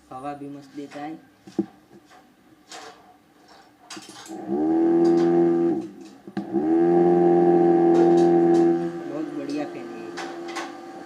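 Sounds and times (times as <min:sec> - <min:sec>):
toy fan motor whirring: 0:06.5 - 0:10.7.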